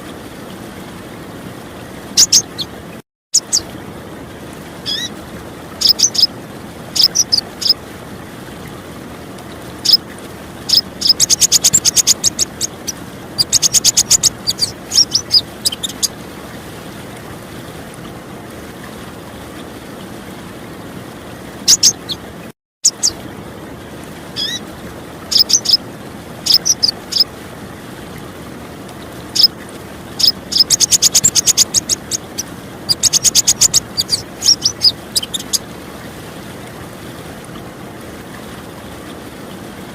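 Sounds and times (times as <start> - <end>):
running water: 0.0 - 39.9
bird chirps and rattling trills: 2.2 - 2.8, 3.4 - 3.7, 4.8 - 5.1, 5.8 - 6.4, 7.0 - 7.8, 9.5 - 10.0, 10.6 - 16.2, 21.7 - 22.2, 22.8 - 23.2, 24.4 - 24.6, 25.3 - 25.8, 26.4 - 27.3, 29.0 - 29.5, 30.2 - 35.6.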